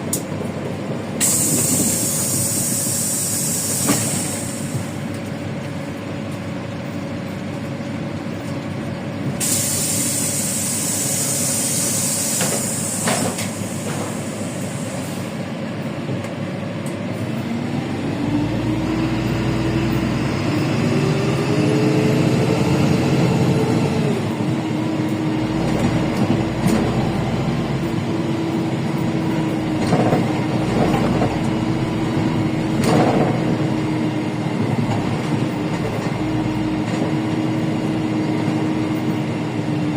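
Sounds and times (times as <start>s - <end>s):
bus engine accelerating: 0.0s - 39.9s
compressed air hissing: 1.2s - 5.0s, 9.4s - 15.3s.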